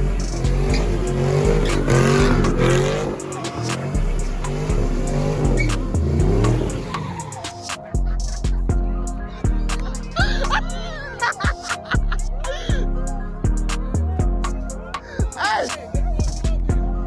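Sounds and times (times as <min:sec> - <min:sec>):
tyres squealing: 0:00.0 - 0:08.3
car engine revving: 0:00.0 - 0:08.6
music with heavy bass: 0:00.0 - 0:17.0.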